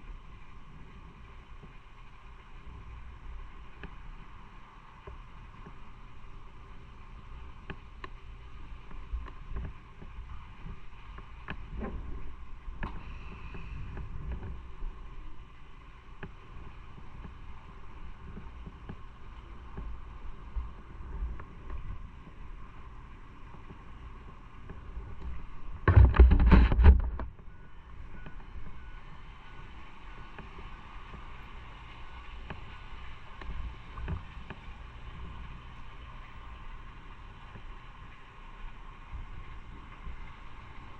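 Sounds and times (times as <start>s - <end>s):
motorcycle engine and road rumble: 0.0s - 40.9s
wind on microphone: 8.6s - 37.7s.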